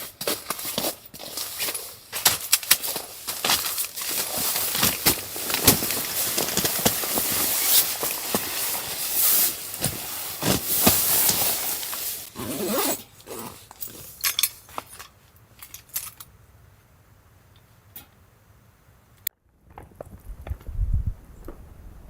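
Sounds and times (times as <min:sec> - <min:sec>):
rustling handling noise: 0:00.0 - 0:16.3.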